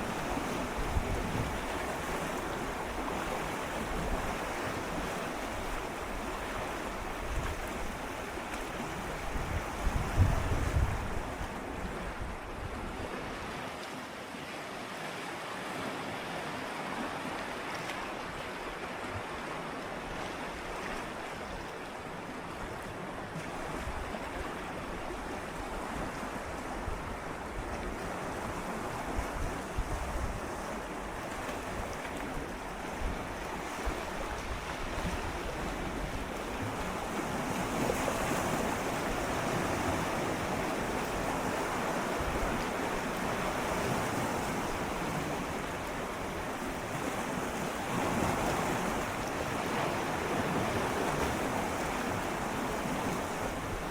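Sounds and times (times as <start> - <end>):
sea waves lapping against rocks: 15.0 - 53.9.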